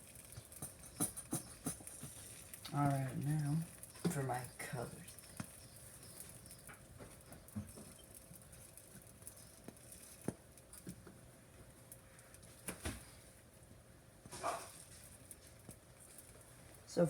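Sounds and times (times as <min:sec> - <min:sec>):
kitchen items taps and clicks: 0:00.3 - 0:02.5
rustle: 0:14.2 - 0:17.0.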